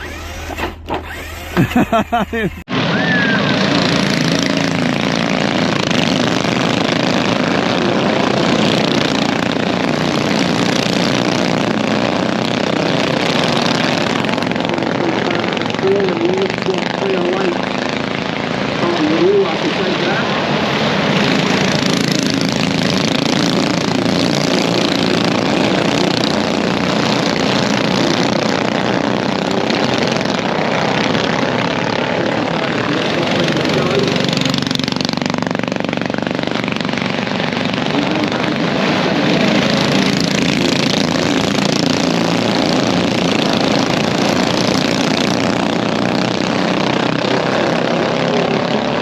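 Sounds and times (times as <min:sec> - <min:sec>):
radio-controlled car whirring: 0:00.0 - 0:49.0.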